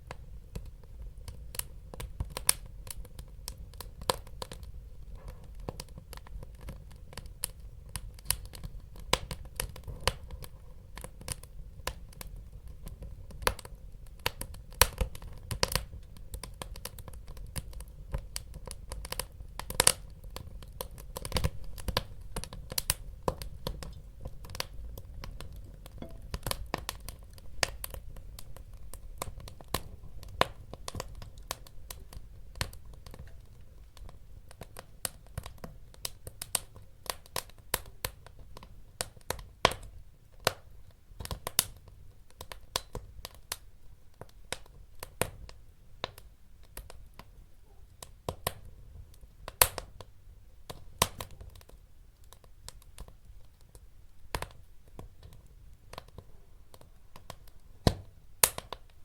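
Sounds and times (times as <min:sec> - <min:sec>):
low rumble of flames: 0:00.0 - 0:43.6
wood fire crackling: 0:00.0 - 0:59.0.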